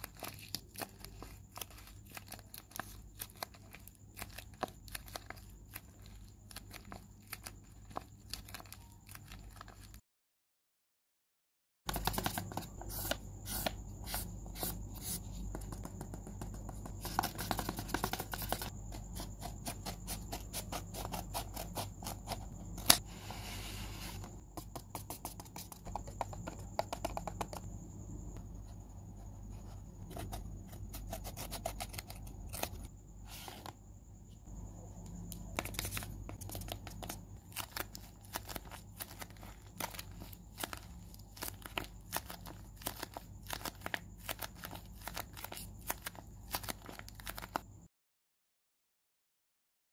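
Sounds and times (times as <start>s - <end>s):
paper crinkling and crackling: 0.0s - 10.0s, 35.5s - 47.6s.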